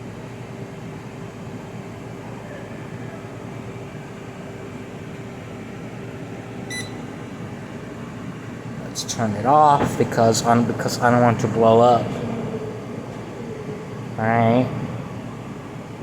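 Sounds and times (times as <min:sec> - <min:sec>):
air fryer fan whirring: 0:00.0 - 0:16.0
constant hum: 0:00.0 - 0:16.0
short high beep: 0:06.7 - 0:07.0.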